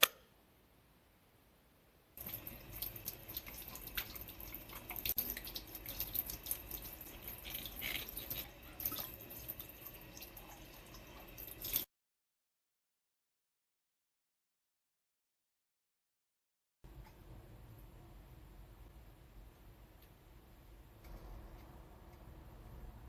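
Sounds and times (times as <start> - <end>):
tap water running and splashing: 2.2 - 11.9.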